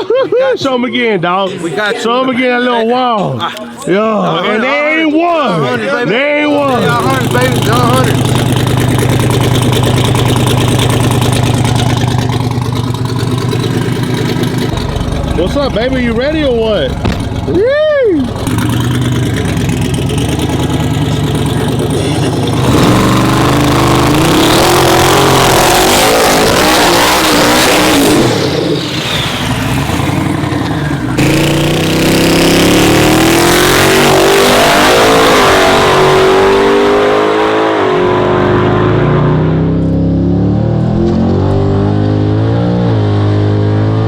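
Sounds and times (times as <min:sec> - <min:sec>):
truck engine accelerating: 0:05.0 - 0:44.0.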